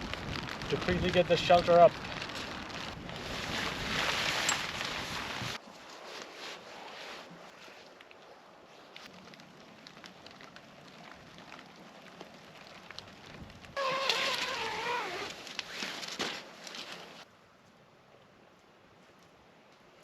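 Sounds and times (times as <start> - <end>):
rain pattering: 0.0 - 5.6, 8.9 - 15.6
rough scraping and rustling: 0.0 - 8.0, 9.0 - 17.3.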